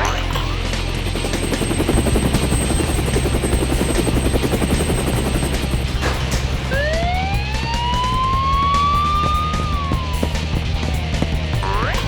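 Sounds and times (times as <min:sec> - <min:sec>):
helicopter rotor chopping: 0:00.0 - 0:12.0
siren wailing: 0:06.7 - 0:12.0.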